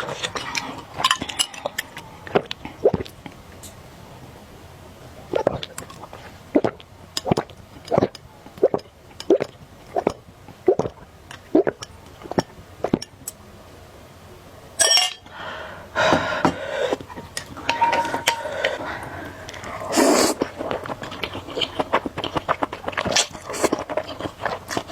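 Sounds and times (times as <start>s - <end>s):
rhythmic chewing: 0.0s - 3.8s, 15.3s - 24.9s
dish sounds: 14.8s - 15.3s, 16.1s - 18.9s.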